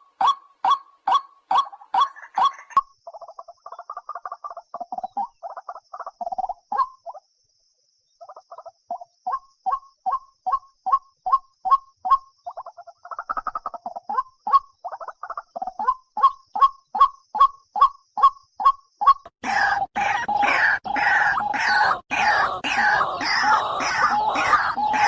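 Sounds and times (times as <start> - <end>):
waterhen calling: 0.0 - 2.8, 18.2 - 25.0.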